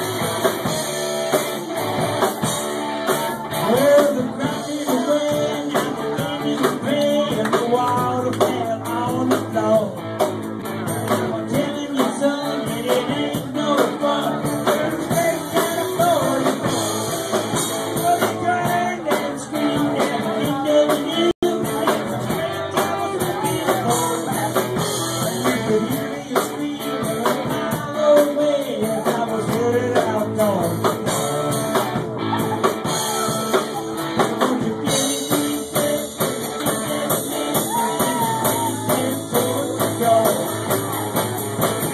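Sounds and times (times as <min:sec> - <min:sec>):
drum kit: 0:00.0 - 0:41.9
guitar: 0:00.0 - 0:41.9
person singing: 0:00.0 - 0:41.9.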